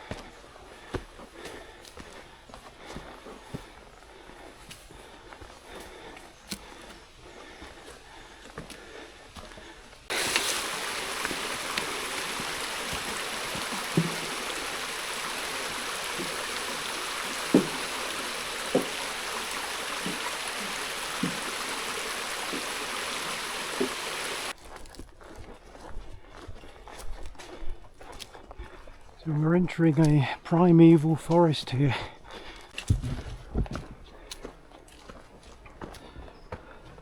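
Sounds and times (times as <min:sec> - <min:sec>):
stream rushing: 0:10.1 - 0:24.5.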